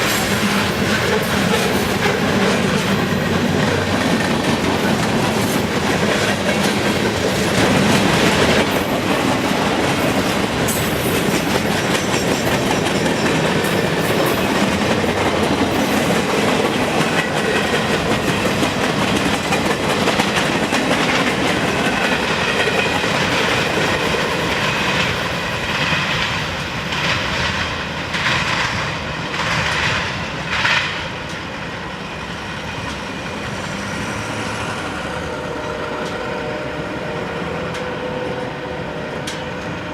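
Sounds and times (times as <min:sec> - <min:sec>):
train wheels clattering over rail joints: 0:00.0 - 0:31.7.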